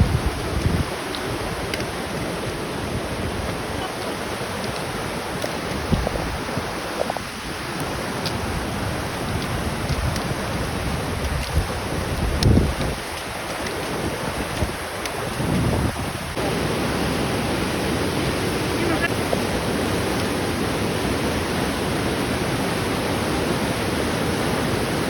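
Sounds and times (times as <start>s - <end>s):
steady rushing noise: 0.0s - 25.0s
wind buffeting microphone: 0.0s - 25.0s
faint clicks: 11.2s - 15.4s.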